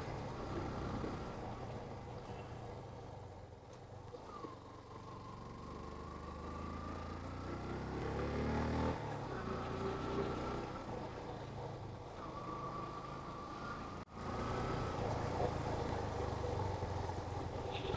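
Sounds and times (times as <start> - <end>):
motorcycle engine revving: 5.0 - 11.7.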